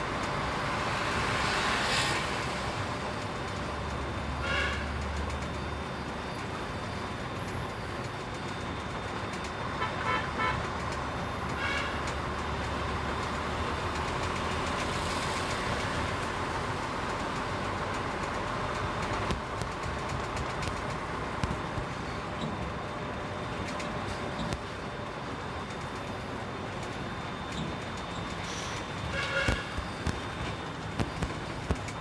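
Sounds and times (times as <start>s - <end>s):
road traffic engine rumble: 0.0s - 32.0s
vehicle horn toots: 9.8s - 10.6s, 29.1s - 29.8s.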